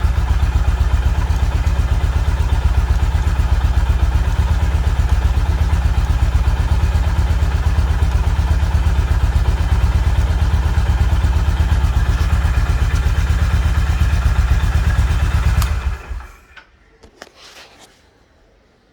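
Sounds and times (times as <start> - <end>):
motorcycle engine thumping: 0.0 - 16.5.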